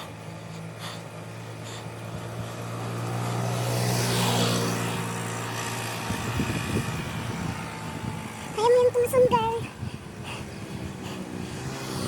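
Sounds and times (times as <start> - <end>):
motor vehicle engine humming: 0.0 - 12.0
vehicle passing by: 0.0 - 12.0.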